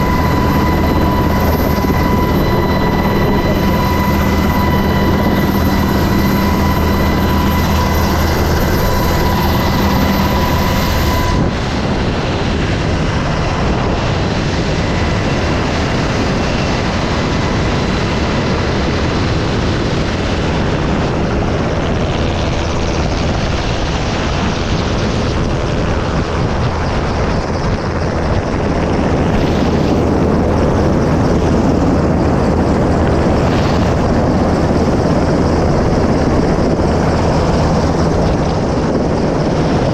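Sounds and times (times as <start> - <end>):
whining tone: 0.0 - 18.4
helicopter rotor and engine: 0.0 - 39.9.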